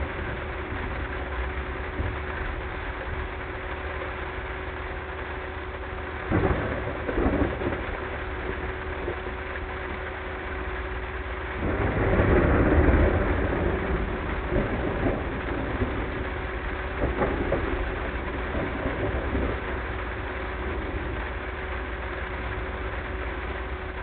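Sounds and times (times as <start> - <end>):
car engine and road noise: 0.0 - 24.0
rain: 0.0 - 24.0
thunder: 6.2 - 10.0, 11.5 - 22.0.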